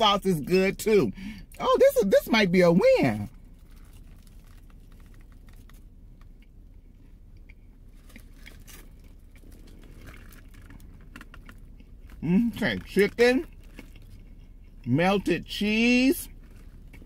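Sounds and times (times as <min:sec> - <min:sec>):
low steady hum: 0:00.0 - 0:17.0
person chewing crispy food: 0:03.2 - 0:17.0
paper wrapper crinkling: 0:03.5 - 0:05.9.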